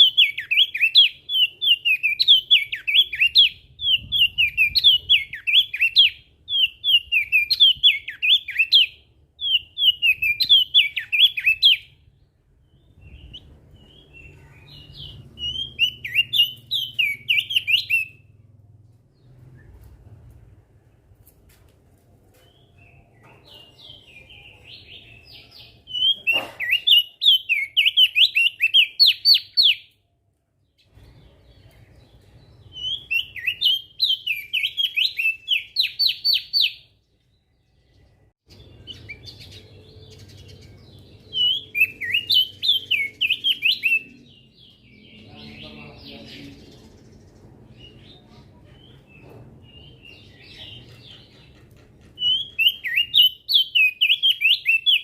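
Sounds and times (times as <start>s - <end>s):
soft bird twittering: 30.8s - 55.0s
bird singing high sweeping notes: 38.5s - 45.6s.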